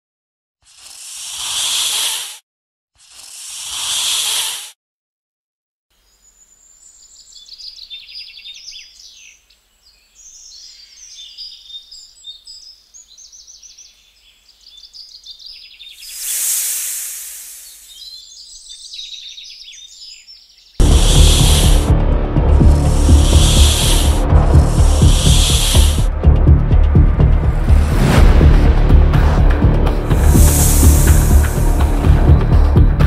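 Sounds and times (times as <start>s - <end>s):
snake hissing: 0.6s - 2.4s, 3.0s - 4.8s, 16.0s - 18.2s, 20.8s - 26.7s, 29.9s - 32.5s
birds chirping and trilling: 6.0s - 26.1s.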